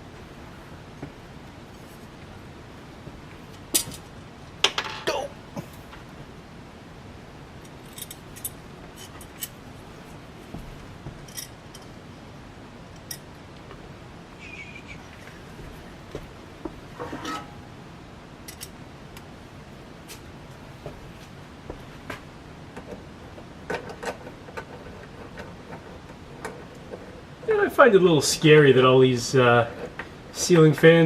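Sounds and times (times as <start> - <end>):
faint steady hiss: 0.0 - 31.0
metal parts clicking and clinking: 3.8 - 5.1, 7.7 - 9.6, 11.2 - 11.9, 18.5 - 18.8.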